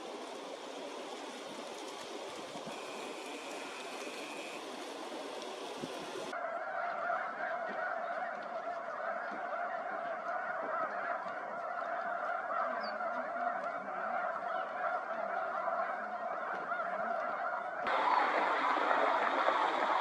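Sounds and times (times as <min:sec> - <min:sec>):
flock of waterfowl calling: 0:00.0 - 0:20.0
geese honking: 0:02.7 - 0:08.0.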